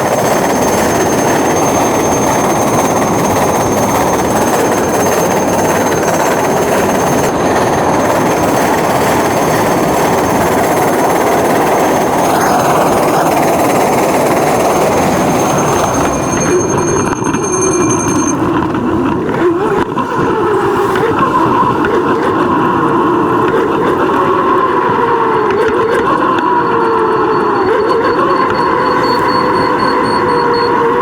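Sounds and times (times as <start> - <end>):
faint high whine: 0.0 - 18.8
wind buffeting microphone: 0.0 - 25.6.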